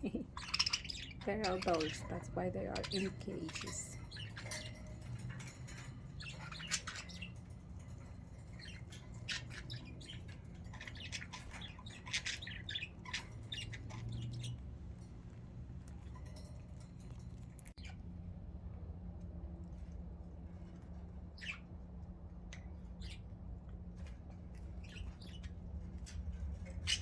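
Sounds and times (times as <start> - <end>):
budgerigars chattering and squawking: 0.0 - 14.7, 21.4 - 21.6, 26.7 - 27.0.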